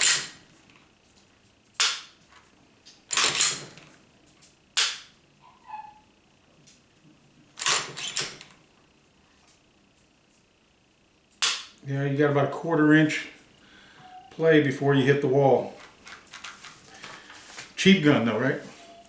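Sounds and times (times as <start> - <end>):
pistol action clicking: 11.4 - 11.8.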